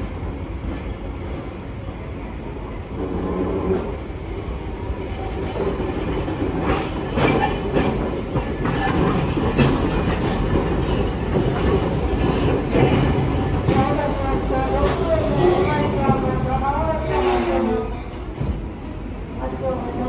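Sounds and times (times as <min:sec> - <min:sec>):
streetcar wheels clacking over rail joints: 0:00.0 - 0:20.0
high wheel squeals: 0:06.1 - 0:11.6.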